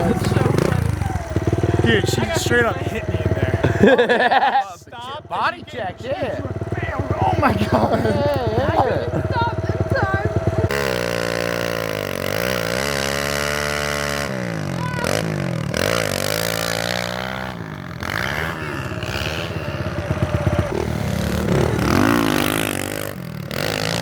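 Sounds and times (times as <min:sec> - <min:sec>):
pit bike engine revving: 0:00.0 - 0:24.0.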